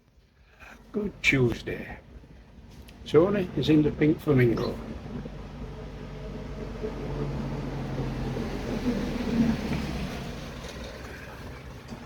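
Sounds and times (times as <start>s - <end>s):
vehicle engine rumble passing: 0.8s - 12.0s.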